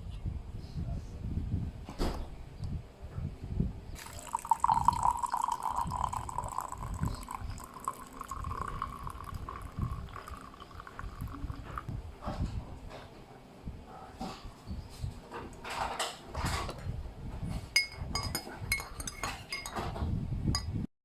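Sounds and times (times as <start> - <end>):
water running into a container: 4.0 - 11.9.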